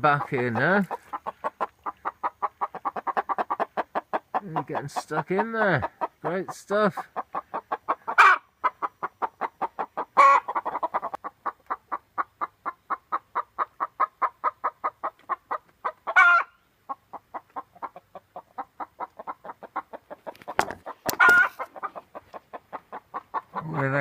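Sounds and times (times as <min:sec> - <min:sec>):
hen calls: 0:00.0 - 0:11.2, 0:20.8 - 0:24.0
hens clucking: 0:00.0 - 0:24.0.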